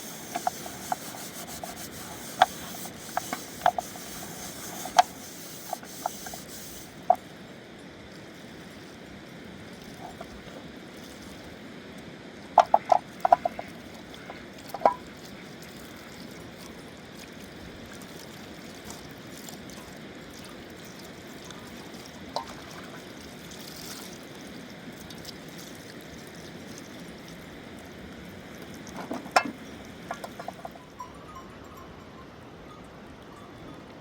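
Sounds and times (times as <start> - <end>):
sharp clicks and knocks: 0.0 - 7.2, 12.6 - 15.0, 28.9 - 30.8
river water running: 0.0 - 31.8.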